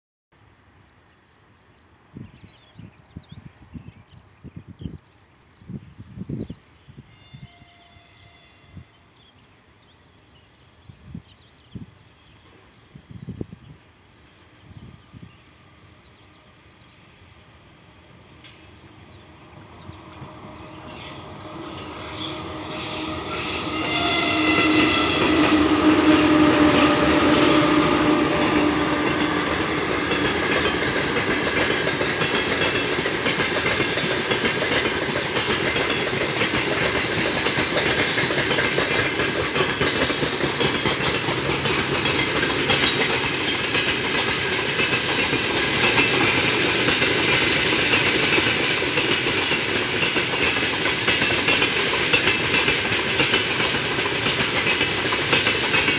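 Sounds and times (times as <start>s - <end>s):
electric locomotive whine: 11.1s - 55.9s
freight wagons wheel-and-rail noise: 13.9s - 55.9s
wheel and brake squeals: 20.9s - 27.6s.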